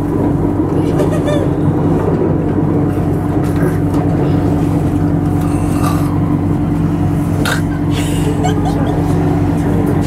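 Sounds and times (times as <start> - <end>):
rail rumble: 0.0 - 10.0
train electric hum: 0.0 - 10.0.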